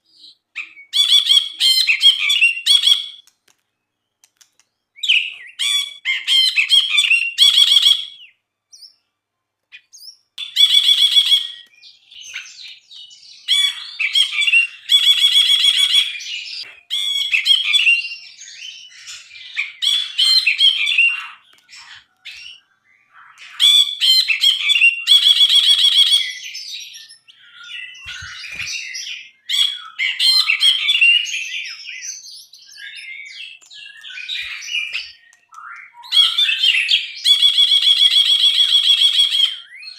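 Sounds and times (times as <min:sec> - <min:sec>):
bulbul singing: 0:09.7 - 0:39.9.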